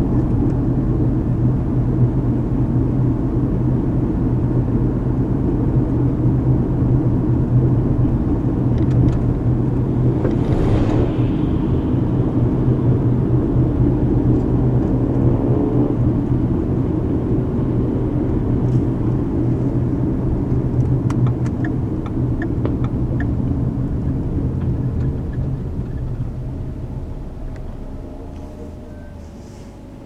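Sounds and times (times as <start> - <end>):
car cabin road noise: 6.4 - 30.0.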